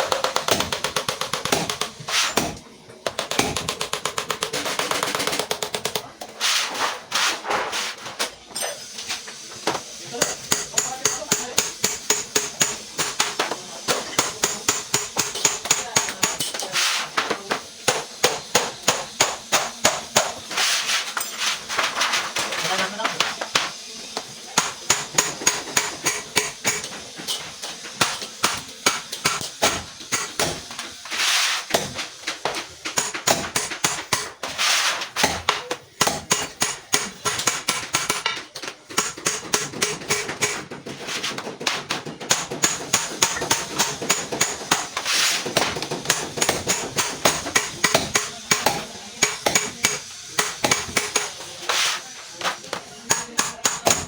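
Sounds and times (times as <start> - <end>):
hammer striking metal: 10.2 - 16.6, 24.6 - 30.8, 35.2 - 40.7, 41.7 - 51.8, 52.4 - 54.0.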